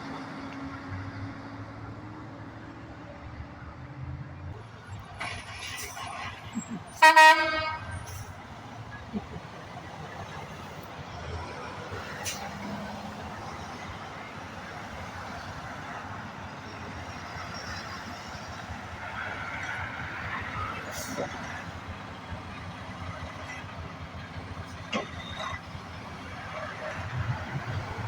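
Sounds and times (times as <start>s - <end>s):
road traffic noise: 0.0s - 28.0s
truck air horn blast: 7.0s - 8.3s.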